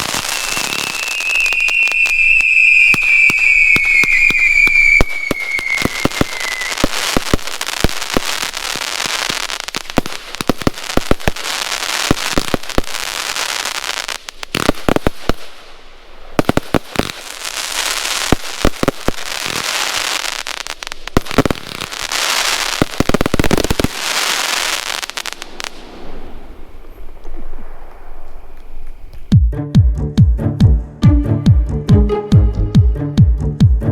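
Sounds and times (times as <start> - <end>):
falling firework whistle: 0.0 - 9.6, 16.4 - 29.3
firework cake firing: 0.0 - 29.3.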